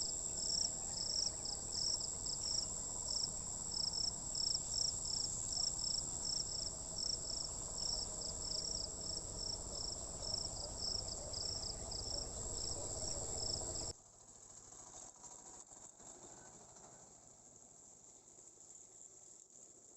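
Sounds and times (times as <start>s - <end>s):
cricket chirping call: 0.0s - 13.9s
crickets trilling: 0.0s - 13.9s.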